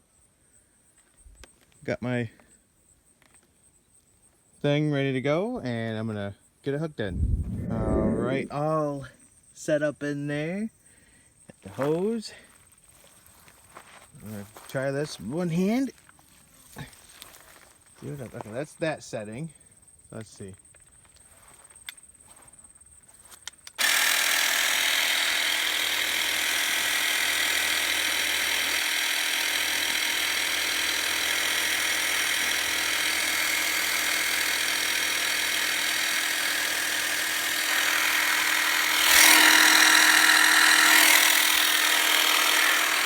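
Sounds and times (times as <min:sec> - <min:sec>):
pressure washer pump whining: 0:23.8 - 0:43.0.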